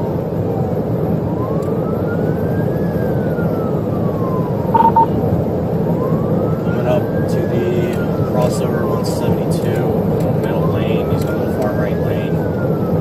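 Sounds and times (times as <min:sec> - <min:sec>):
road and engine noise: 0:00.0 - 0:13.0
police siren wailing: 0:00.5 - 0:09.6
short beeps: 0:04.8 - 0:05.1.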